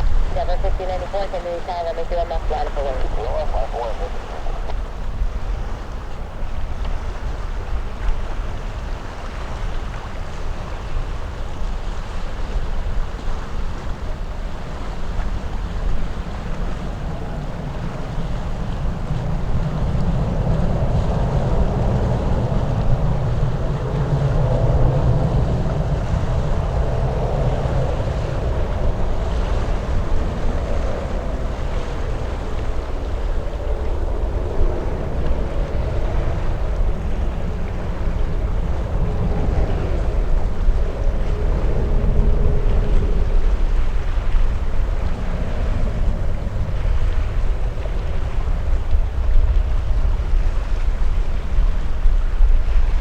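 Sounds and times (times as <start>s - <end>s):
jet engines at takeoff: 0.0s - 53.0s
wind buffeting microphone: 0.0s - 53.0s.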